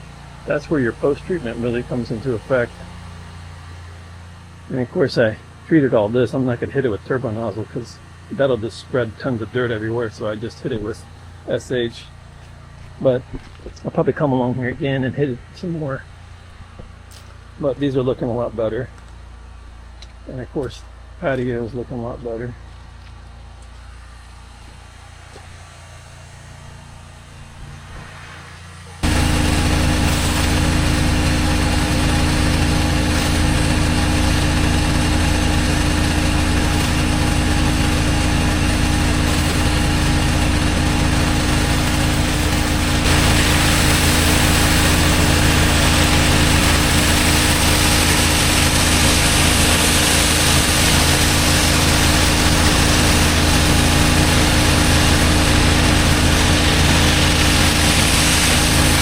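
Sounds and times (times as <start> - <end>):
pressure washer engine running: 0.0 - 59.0
water spray hiss: 27.7 - 59.0.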